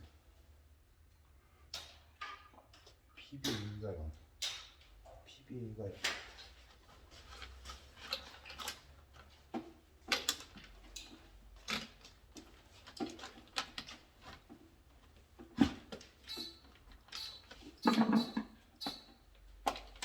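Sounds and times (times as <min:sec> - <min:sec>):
hand tools clicking and knocking: 0:15.5 - 0:20.0.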